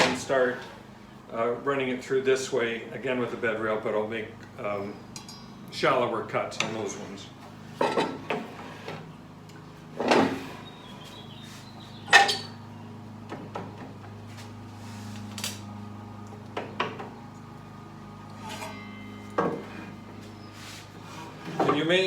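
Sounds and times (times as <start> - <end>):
steady low hum: 0.0 - 22.0
metal clanks and knocks: 7.8 - 8.6, 12.1 - 12.6, 18.4 - 20.0.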